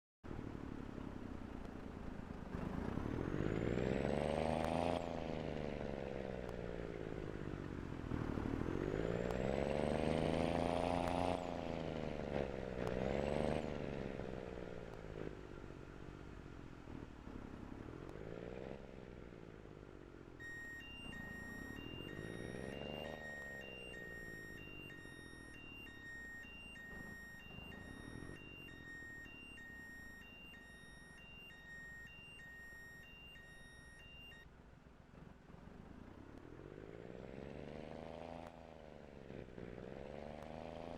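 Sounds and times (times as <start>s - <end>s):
truck diesel engine revving: 2.2s - 16.2s, 16.9s - 34.2s
electronic beeps: 20.4s - 34.4s.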